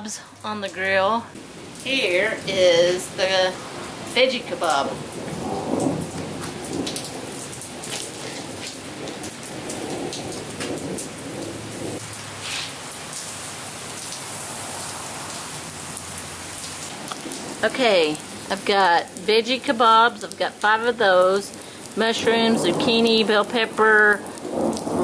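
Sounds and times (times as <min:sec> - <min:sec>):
rain on concrete: 0:00.0 - 0:25.0
thunder rumbling: 0:00.7 - 0:12.1, 0:16.9 - 0:25.0.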